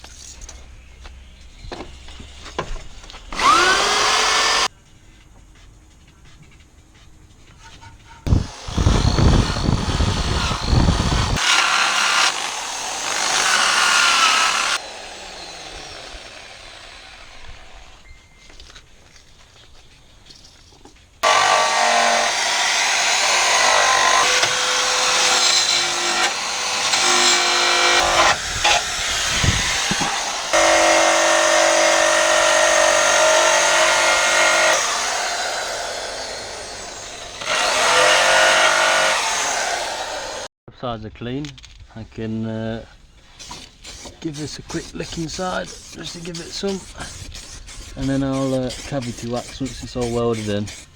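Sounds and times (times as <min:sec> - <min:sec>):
power tool grinding metal: 0:03.3 - 0:04.7, 0:08.3 - 0:18.0, 0:21.2 - 0:40.5, 0:43.4 - 0:50.9.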